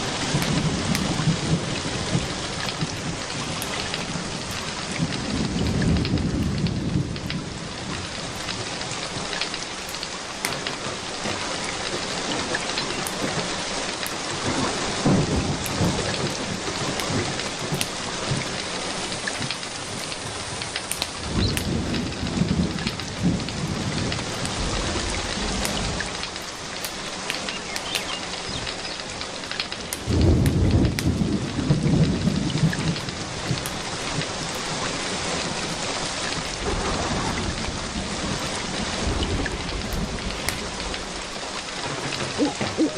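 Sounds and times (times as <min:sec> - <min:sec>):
steady rain: 0:00.0 - 0:42.9
thunder rumbling: 0:00.0 - 0:42.9
sharp ticks: 0:19.4 - 0:21.8, 0:25.6 - 0:31.1.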